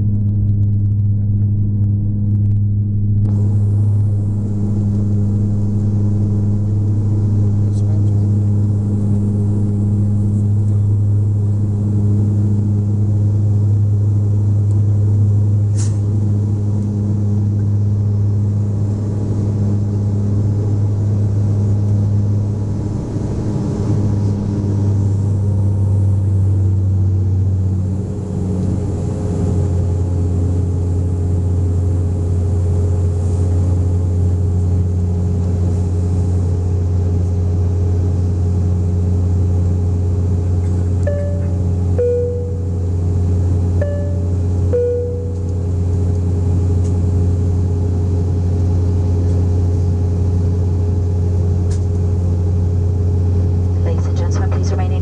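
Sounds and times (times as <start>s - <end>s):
propeller droning in cabin: 0.0s - 55.0s
short click: 15.8s - 16.0s.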